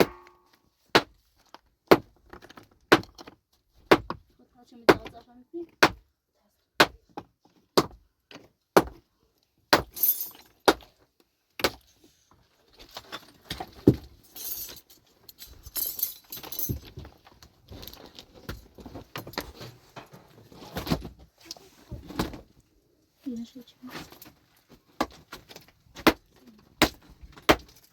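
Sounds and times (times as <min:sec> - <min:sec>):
stones clattering and scraping: 0:16.4 - 0:21.3.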